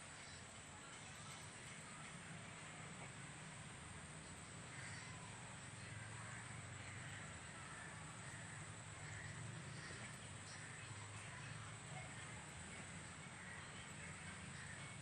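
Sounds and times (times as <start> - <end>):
low steady hum: 0.0 - 15.0
faint bird calls: 4.7 - 15.0.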